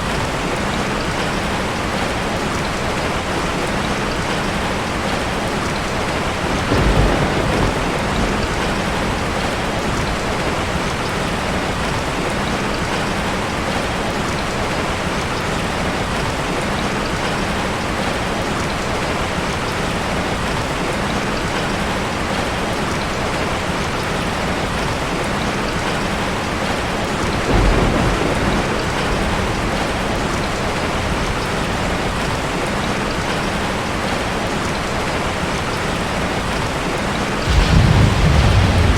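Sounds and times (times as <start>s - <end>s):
steady rain: 0.0s - 38.9s
low rumbles of thunder: 5.6s - 12.0s, 27.2s - 32.5s, 37.4s - 38.9s.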